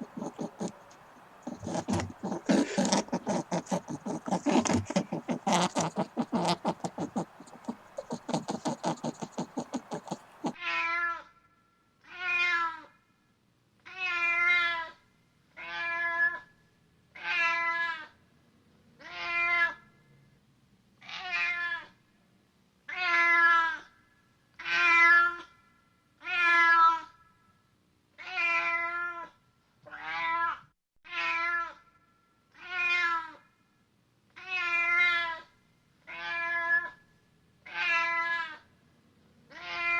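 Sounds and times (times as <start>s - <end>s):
animal meow-like cries: 0.0s - 0.7s, 1.5s - 11.3s
rapid scratchy clicking: 0.0s - 10.6s.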